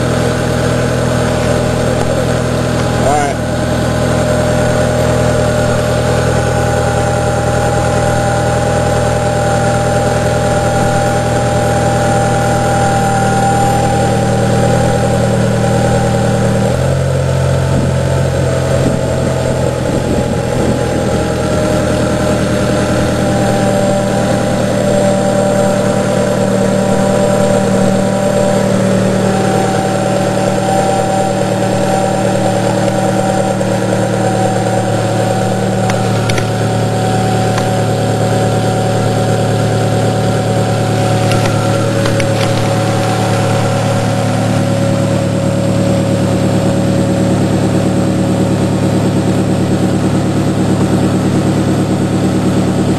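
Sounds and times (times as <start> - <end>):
car engine idling: 0.0 - 52.9.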